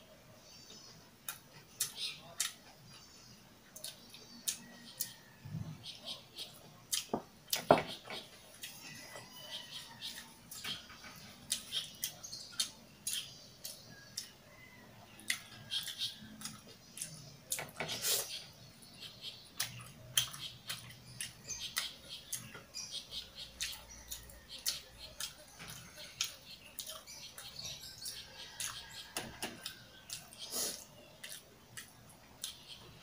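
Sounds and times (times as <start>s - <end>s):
wet chewing and lip-smacking: 3.7s - 5.2s, 9.6s - 14.4s, 15.1s - 17.6s, 19.2s - 32.9s.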